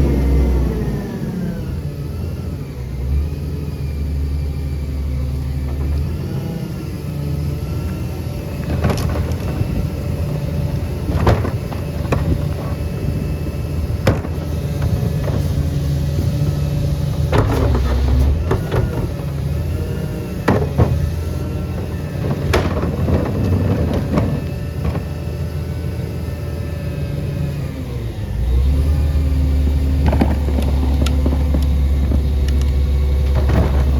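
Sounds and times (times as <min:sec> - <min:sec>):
garbage truck running with whine: 0:00.0 - 0:33.9
sharp clanks and bangs: 0:13.9 - 0:19.7, 0:20.4 - 0:25.1.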